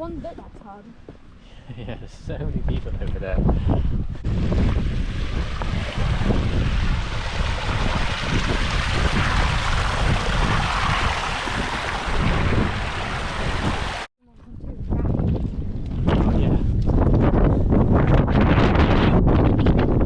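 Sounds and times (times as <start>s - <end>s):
wind buffeting microphone: 1.7s - 20.0s.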